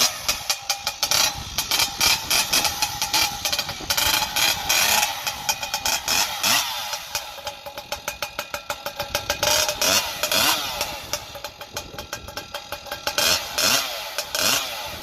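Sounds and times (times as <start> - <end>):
chainsaw engine popping: 0.0 - 15.0
starter cord pulls: 0.0 - 15.0.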